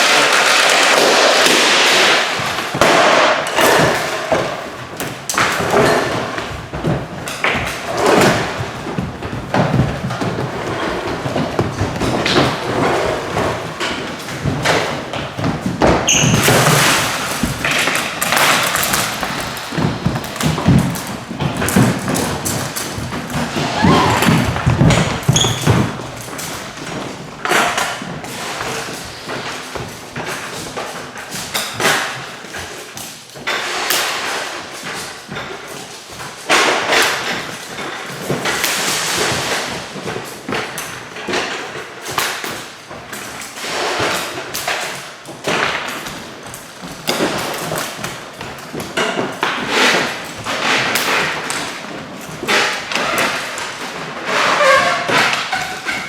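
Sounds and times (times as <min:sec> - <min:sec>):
thumps knocks and clatter: 0:00.9 - 0:32.8.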